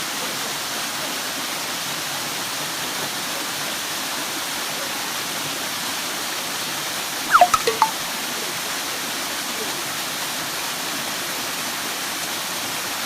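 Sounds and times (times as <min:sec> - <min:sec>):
short falling-pitch sounds: 0:07.3 - 0:08.0.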